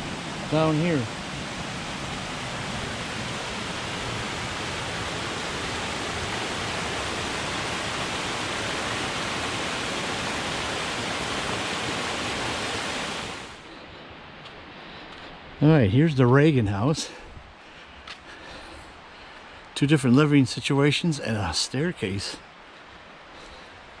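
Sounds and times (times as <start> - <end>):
flowing creek water: 0.0 - 15.4.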